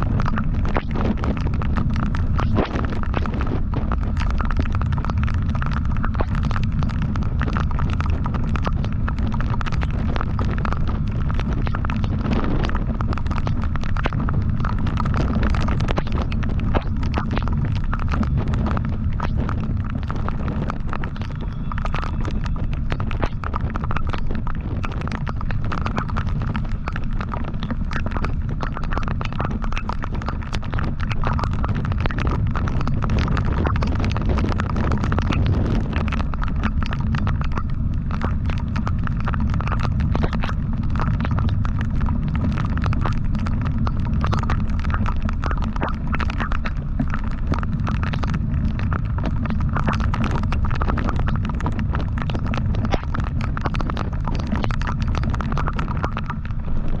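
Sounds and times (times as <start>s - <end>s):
wind buffeting microphone: 0.0s - 42.2s.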